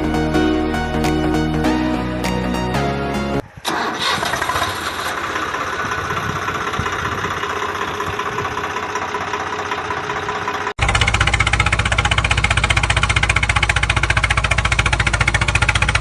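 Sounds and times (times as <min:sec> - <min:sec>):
model diesel engine running fast: 0:03.4 - 0:16.0.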